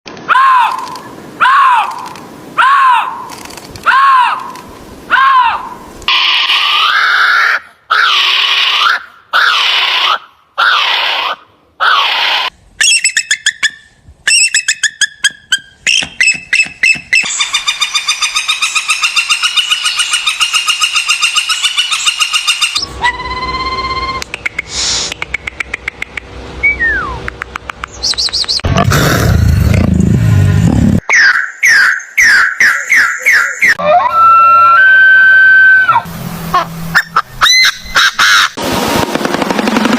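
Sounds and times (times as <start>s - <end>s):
rising and falling calls: 3.8s - 28.7s, 31.0s - 38.6s
whistles: 26.6s - 27.2s
harsh bird-like calls: 31.0s - 33.9s.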